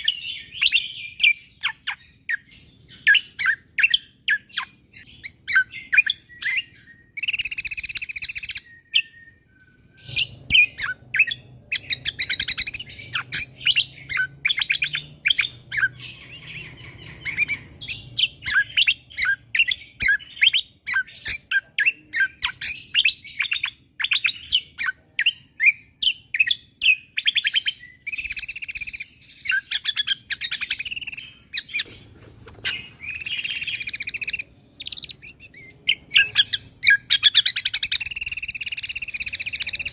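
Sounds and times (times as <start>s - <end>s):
songbird singing high chirps: 0.0s - 39.9s
harsh buzzy bird chatter: 10.0s - 39.9s.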